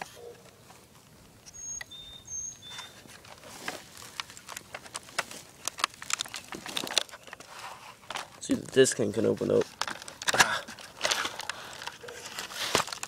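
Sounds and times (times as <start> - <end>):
bird chirping: 1.4 - 3.1
plastic clicking and crackling: 2.6 - 13.0.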